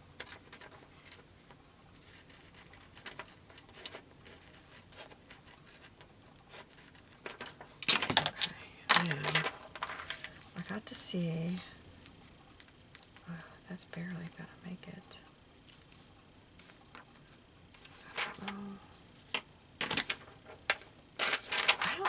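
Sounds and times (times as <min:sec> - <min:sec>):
paper rustling: 0:00.2 - 0:10.4, 0:15.7 - 0:22.0
craft knife scratching paper: 0:02.0 - 0:07.3.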